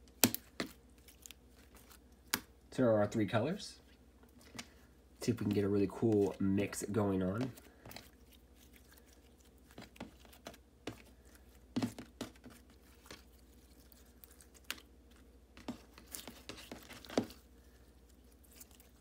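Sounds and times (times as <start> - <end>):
slime squelching and popping: 7.4 - 19.0.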